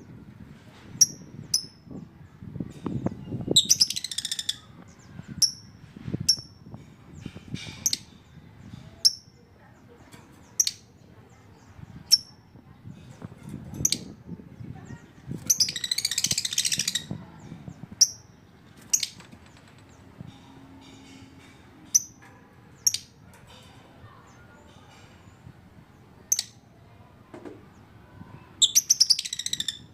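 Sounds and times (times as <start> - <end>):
lovebird chirps: 3.2 - 6.6, 15.4 - 19.2, 21.9 - 22.2, 22.8 - 23.2, 28.6 - 29.9
lovebird chattering calls: 3.6 - 4.7, 15.4 - 17.2, 21.9 - 22.2, 28.6 - 29.9.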